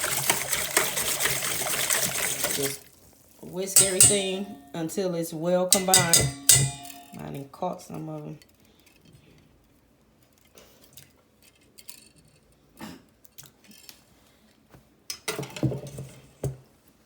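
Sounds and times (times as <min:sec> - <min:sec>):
whisk clinking against a bowl: 0:03.7 - 0:04.8, 0:05.7 - 0:07.3.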